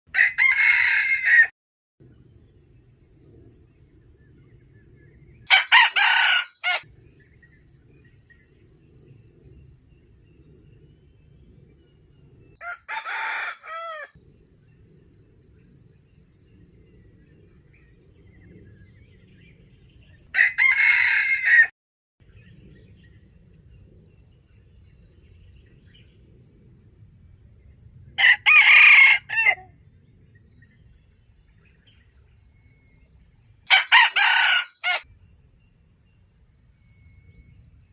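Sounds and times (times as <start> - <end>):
rooster crowing: 0.1 - 1.5, 5.5 - 6.8, 12.6 - 14.2, 20.3 - 21.7, 28.2 - 29.7, 33.7 - 35.0.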